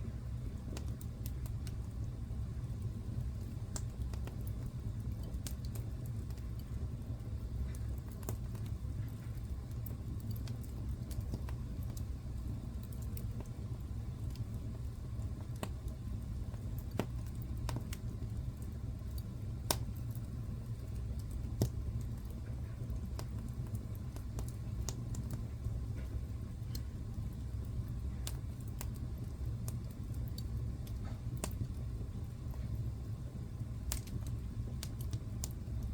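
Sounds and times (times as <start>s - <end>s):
wood fire crackling: 0.0s - 35.9s
sharp pops of fire: 19.1s - 20.2s, 21.2s - 22.3s, 33.8s - 35.6s.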